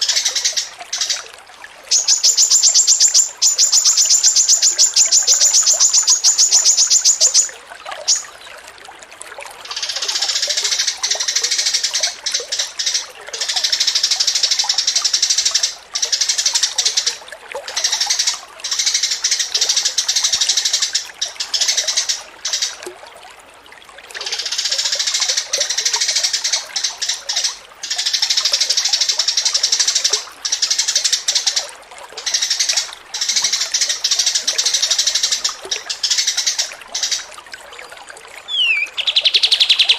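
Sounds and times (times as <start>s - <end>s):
songbird singing chattering song: 1.9s - 8.3s, 38.5s - 39.9s.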